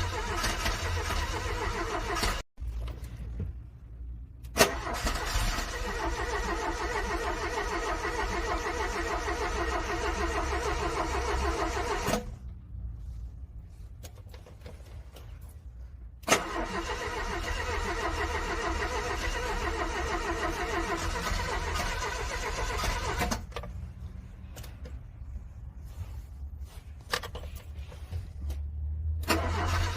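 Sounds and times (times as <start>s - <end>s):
car starter cranking engine: 0.0s - 2.5s, 4.4s - 12.4s, 16.2s - 23.6s, 29.2s - 29.9s.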